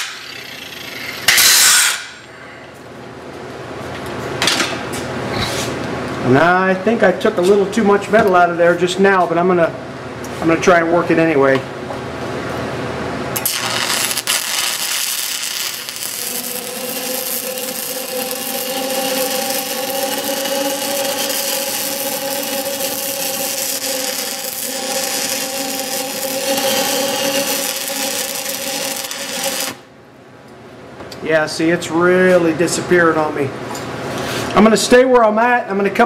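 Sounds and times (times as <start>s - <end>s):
welding arc crackling and hissing: 0.0s - 2.2s, 13.4s - 29.9s.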